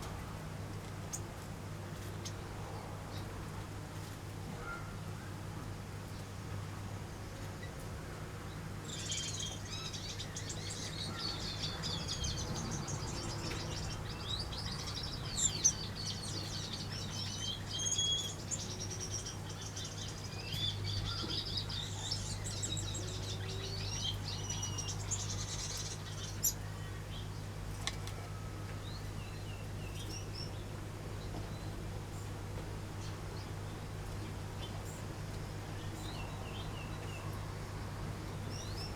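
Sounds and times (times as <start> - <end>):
birds chirping and twittering: 8.9 - 37.5, 38.3 - 38.9.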